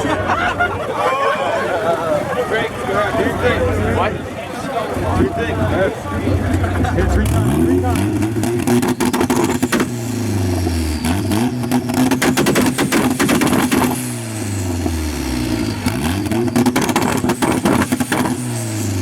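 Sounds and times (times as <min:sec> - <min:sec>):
exhaust popping and crackling: 0:02.6 - 0:19.0
car engine revving: 0:04.8 - 0:19.0.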